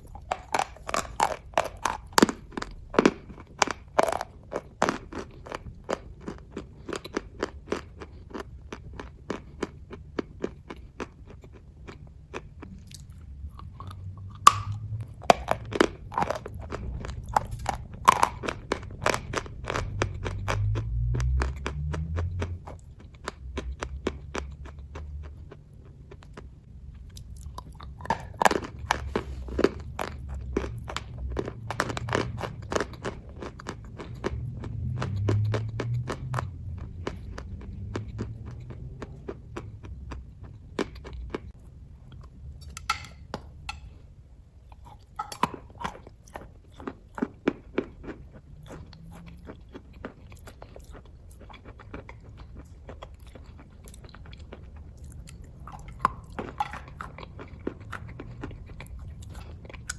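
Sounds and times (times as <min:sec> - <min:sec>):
chewing mouth clicks: 0:00.0 - 0:43.0, 0:44.7 - 0:59.9
low rumble: 0:12.6 - 0:44.7.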